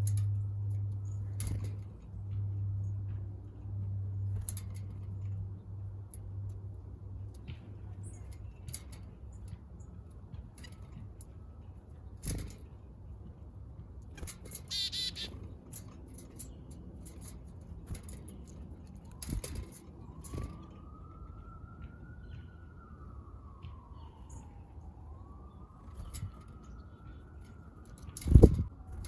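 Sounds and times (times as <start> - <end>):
distant emergency siren wailing: 0.1 - 29.0
bird chirps: 14.2 - 15.6.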